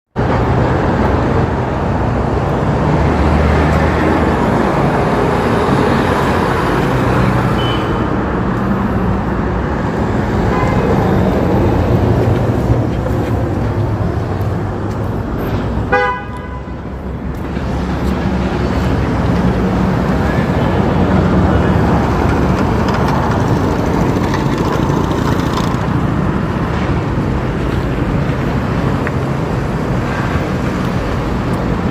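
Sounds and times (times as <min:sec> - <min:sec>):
motorbike engine and road rumble: 0:00.2 - 0:31.9
vehicle horn toot: 0:07.6 - 0:08.1, 0:10.5 - 0:11.0, 0:15.9 - 0:16.8.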